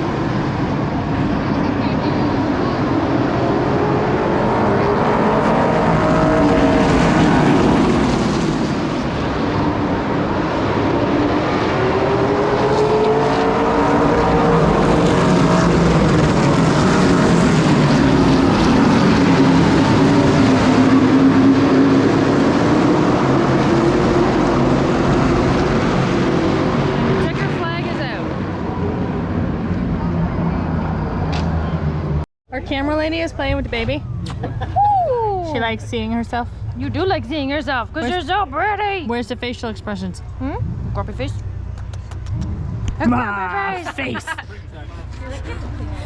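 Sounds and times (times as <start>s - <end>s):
race car engines passing: 0.0s - 46.0s.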